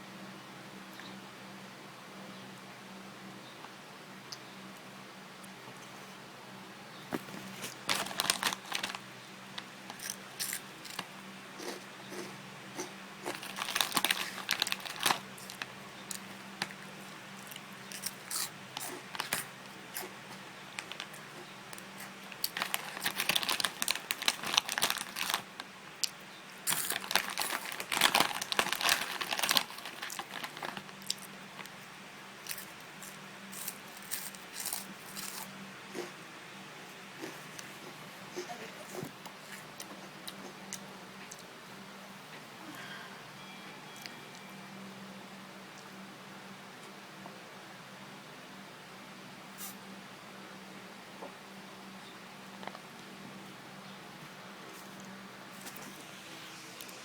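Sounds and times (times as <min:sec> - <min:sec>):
fries crunching: 0:07.1 - 0:36.2
plastic snack packet crinkling: 0:07.4 - 0:20.1, 0:20.7 - 0:25.7, 0:26.6 - 0:31.8, 0:32.4 - 0:35.5.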